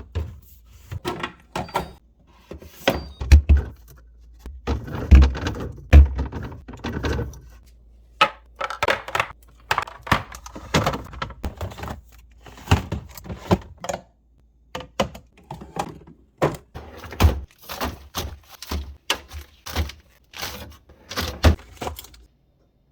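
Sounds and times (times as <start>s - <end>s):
groceries knocking and thunking: 0.0s - 22.3s
containers clicking into place: 8.2s - 12.0s.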